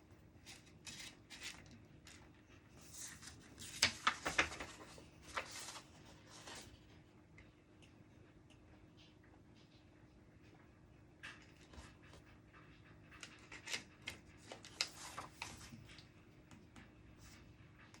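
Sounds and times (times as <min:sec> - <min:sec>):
paper and objects rustling: 0:00.4 - 0:06.8, 0:13.1 - 0:16.1.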